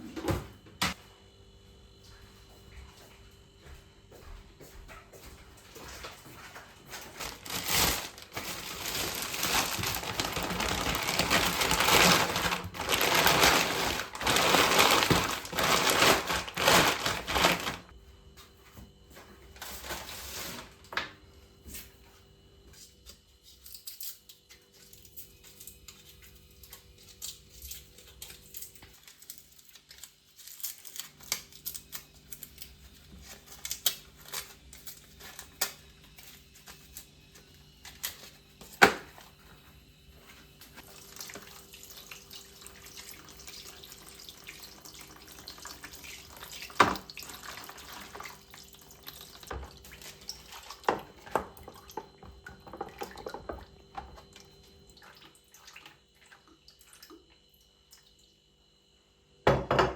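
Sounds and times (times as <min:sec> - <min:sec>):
rustling and crinkling handling: 0:04.9 - 0:21.0, 0:26.1 - 0:42.1.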